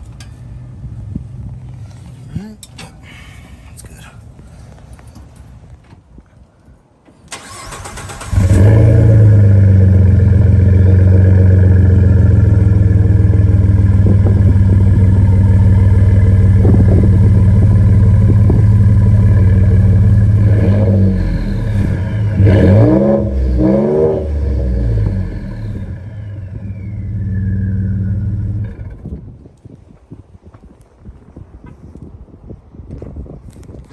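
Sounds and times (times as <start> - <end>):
truck engine idling and revving: 0.0 - 2.8, 7.4 - 29.2
engine cranking: 7.2 - 22.0.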